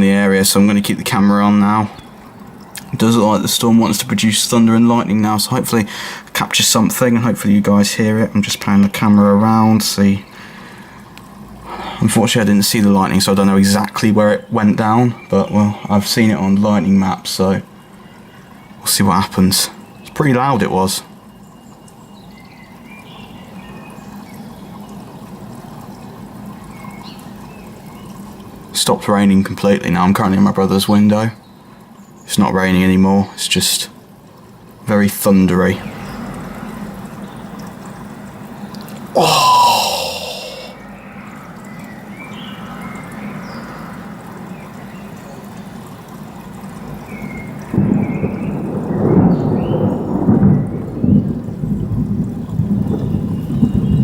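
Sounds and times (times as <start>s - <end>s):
low background noise: 0.0s - 54.0s
low storm rumbling: 11.0s - 14.8s, 34.8s - 41.1s, 45.5s - 54.0s
rolling thunderclap: 47.6s - 54.0s.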